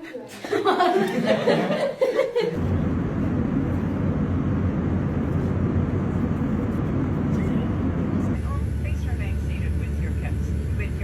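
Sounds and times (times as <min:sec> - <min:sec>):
airliner engines and airflow drone: 0:02.6 - 0:11.0.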